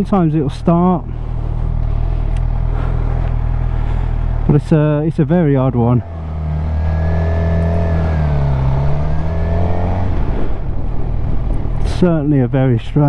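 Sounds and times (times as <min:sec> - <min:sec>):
motorcycle engine running: 0:00.0 - 0:12.4.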